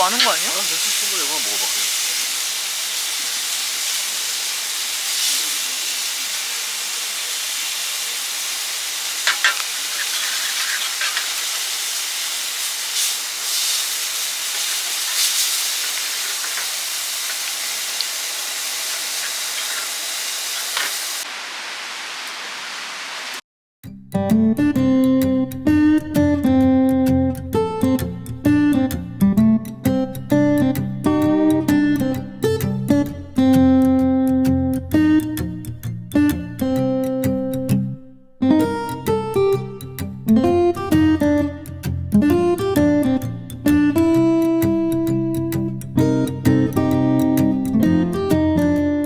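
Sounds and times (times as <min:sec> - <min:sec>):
meat sizzling on a grill: 0:00.0 - 0:23.4
fat popping: 0:09.2 - 0:11.3
acoustic guitar music: 0:24.3 - 0:49.0.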